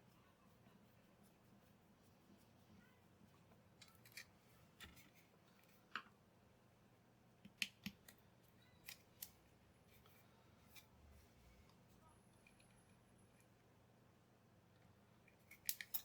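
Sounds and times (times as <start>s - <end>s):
small objects clicking and tapping: 7.4s - 9.4s, 14.8s - 16.0s.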